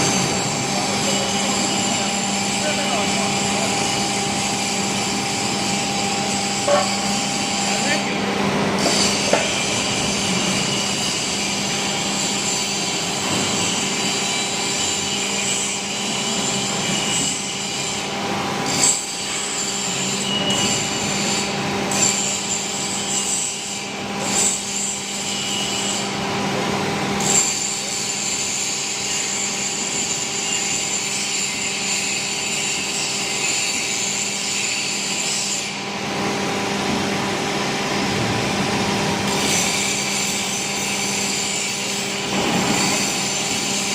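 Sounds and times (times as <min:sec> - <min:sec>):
hydraulic drive hum: 0:03.4 - 0:07.8
metal scraping and rubbing: 0:05.7 - 0:08.0.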